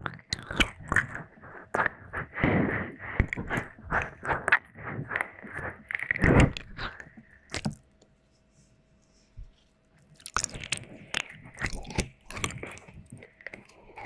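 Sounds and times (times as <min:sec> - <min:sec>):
wet mouth licking sounds: 0:00.0 - 0:02.5, 0:10.0 - 0:14.0
quick wet clicks and smacks: 0:07.0 - 0:07.8, 0:10.0 - 0:13.8.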